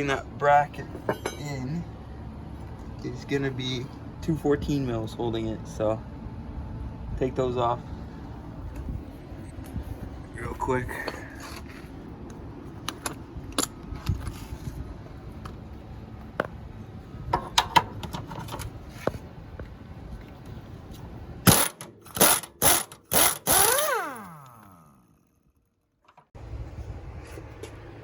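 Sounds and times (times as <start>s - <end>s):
tools and metal parts clinking: 0.9s - 1.6s
cordless power drill bursts: 21.5s - 24.8s.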